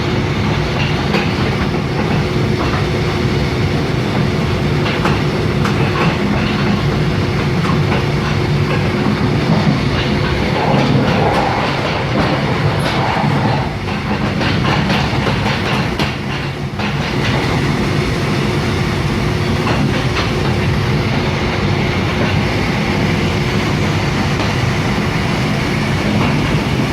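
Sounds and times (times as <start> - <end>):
train rumbling on track: 0.0 - 26.9
wheels clicking over rail joints: 0.4 - 3.3, 4.0 - 17.6, 19.5 - 22.6.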